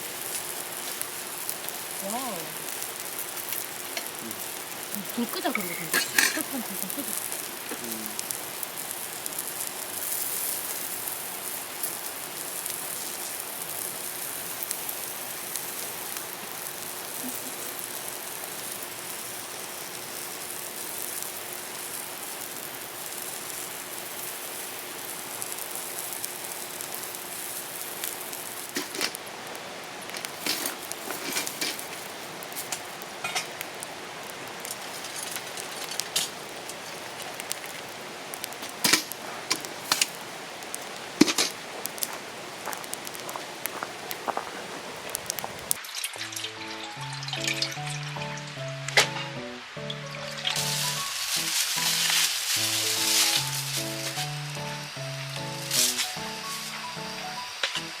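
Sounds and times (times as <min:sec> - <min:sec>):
meat sizzling on a griddle: 0:00.0 - 0:58.0
utensils knocking on griddle: 0:05.6 - 0:06.5, 0:41.2 - 0:41.6.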